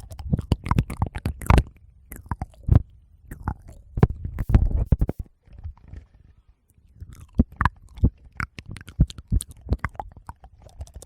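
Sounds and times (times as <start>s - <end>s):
sharp clicks and pops: 0.0s - 11.0s
soft low thumps: 2.7s - 6.1s.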